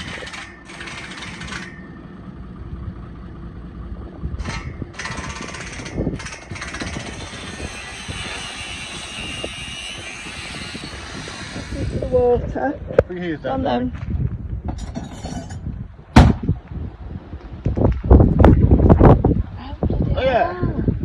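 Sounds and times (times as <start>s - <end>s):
heavy machinery running: 0.0s - 12.4s.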